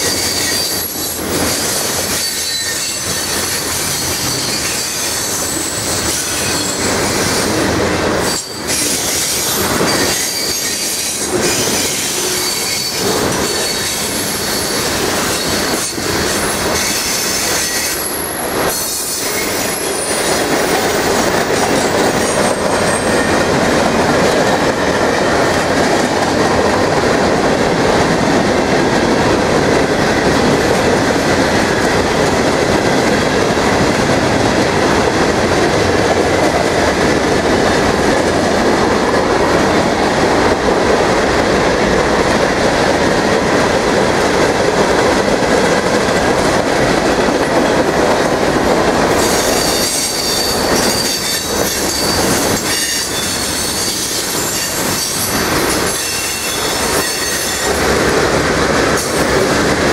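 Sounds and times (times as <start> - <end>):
high wheel squeal: 0.0 - 7.5, 8.2 - 20.5, 49.1 - 57.7
freight train wheels on rails: 0.0 - 59.9.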